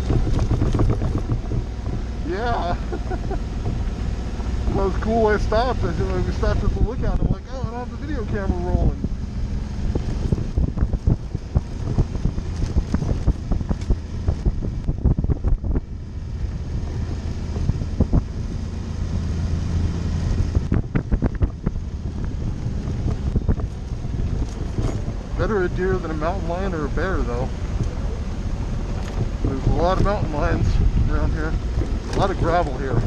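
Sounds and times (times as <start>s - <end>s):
knocks and clatters: 0.0s - 2.2s, 22.8s - 25.4s, 28.8s - 30.2s
motorcycle engine running: 0.0s - 33.0s
wind noise on microphone: 0.0s - 33.0s.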